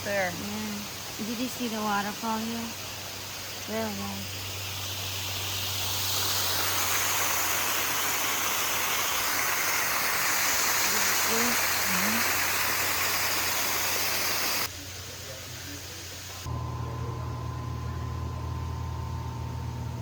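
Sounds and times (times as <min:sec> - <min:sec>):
waterfall rushing: 0:06.0 - 0:14.7.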